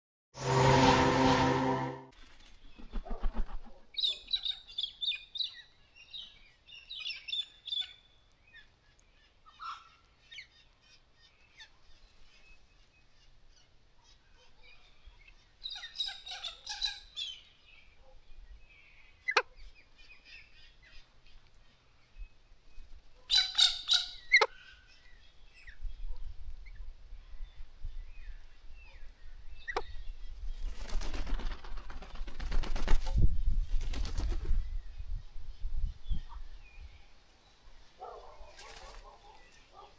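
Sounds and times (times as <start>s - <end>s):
rushing noise: 0.4s - 2.1s.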